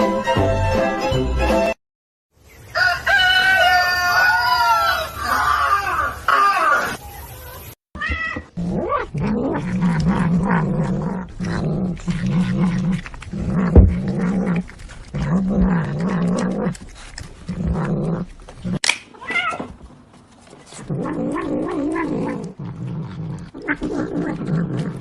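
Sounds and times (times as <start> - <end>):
rooster crowing: 2.7 - 6.1
cat growling and yowling: 8.0 - 19.7, 20.8 - 25.0.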